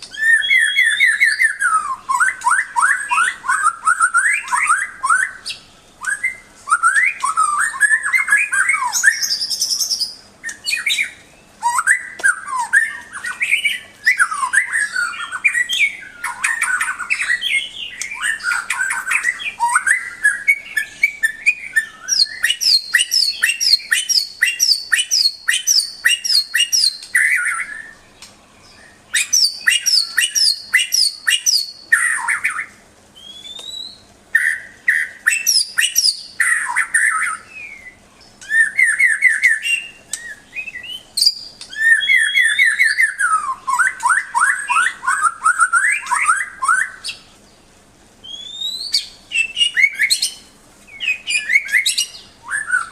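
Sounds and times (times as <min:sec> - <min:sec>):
bird singing whistled phrases: 0:00.0 - 0:47.3, 0:48.2 - 0:52.9.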